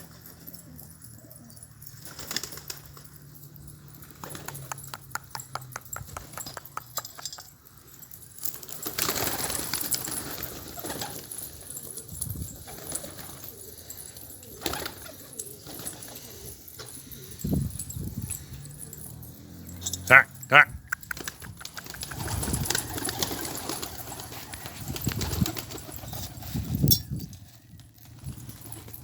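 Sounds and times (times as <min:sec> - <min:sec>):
quick run of clicks: 0:04.2 - 0:07.6, 0:20.9 - 0:26.4
pigeons cooing: 0:10.2 - 0:19.2.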